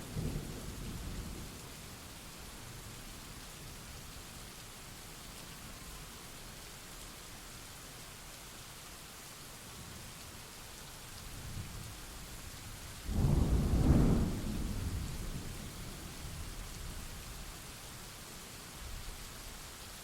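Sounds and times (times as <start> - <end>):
steady rain: 0.0 - 20.0
thunder rumble and crack: 13.1 - 15.6.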